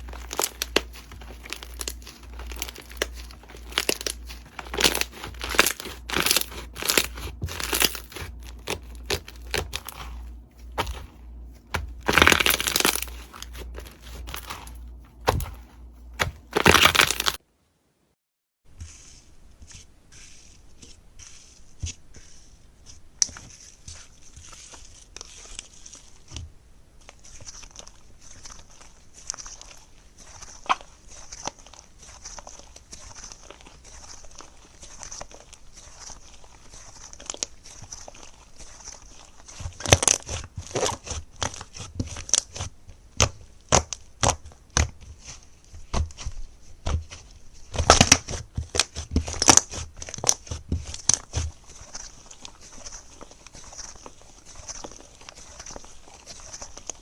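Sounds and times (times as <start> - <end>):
sticky slime clicks and crackles: 0.0 - 10.2, 11.7 - 17.4.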